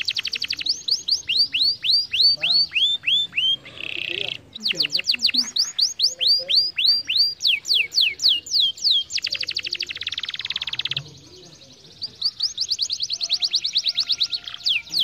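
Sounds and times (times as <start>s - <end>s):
canary singing: 0.0s - 15.0s.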